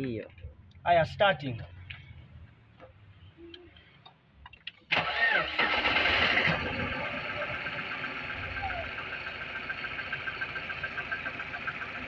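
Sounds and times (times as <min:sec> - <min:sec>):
car engine starting and idling: 0:04.9 - 0:12.0.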